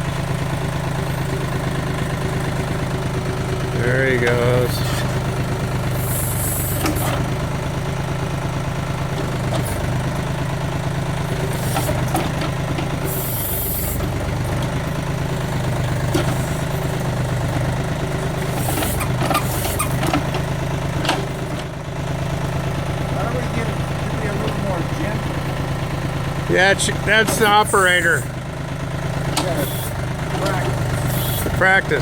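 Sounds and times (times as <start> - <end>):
diesel engine running: 0.0 - 32.0
hydraulic hiss bursts: 31.0 - 31.5.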